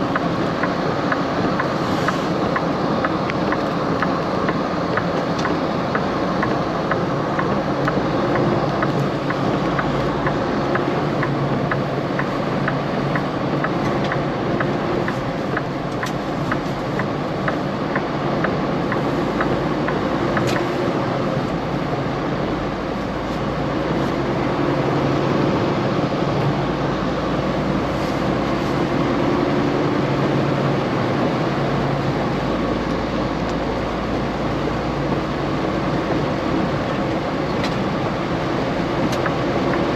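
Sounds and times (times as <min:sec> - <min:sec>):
light regular ticking: 0:00.0 - 0:23.3, 0:32.1 - 0:39.9
road noise: 0:00.0 - 0:39.9
truck engine running: 0:00.0 - 0:39.9.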